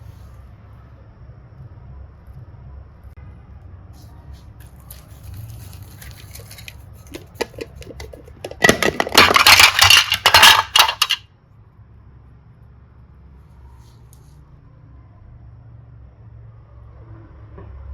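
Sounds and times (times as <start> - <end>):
small hard objects clicking: 4.9 - 11.2.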